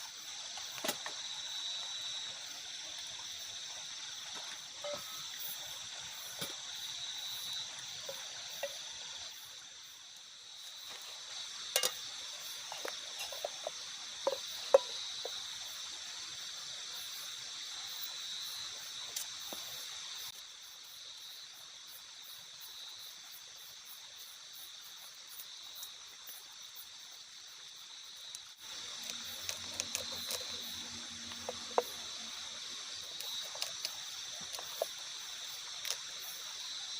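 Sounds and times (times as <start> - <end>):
night insects chorus: 0.0 - 36.9.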